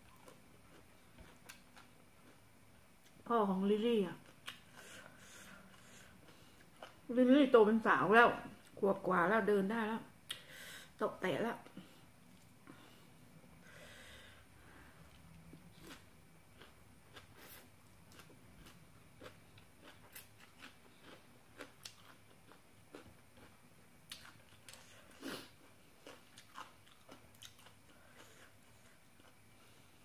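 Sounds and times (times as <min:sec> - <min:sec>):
person chewing and crunching: 0:00.0 - 0:02.4, 0:04.2 - 0:07.1, 0:15.1 - 0:29.5.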